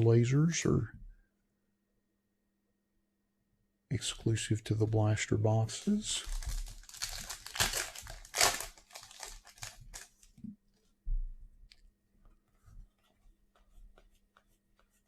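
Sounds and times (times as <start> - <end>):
plastic wrapper tearing and crinkling: 5.7 - 10.4.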